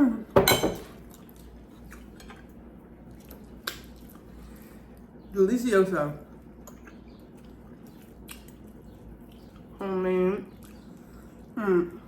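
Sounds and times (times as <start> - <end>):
eating sounds: 6.2 - 12.0.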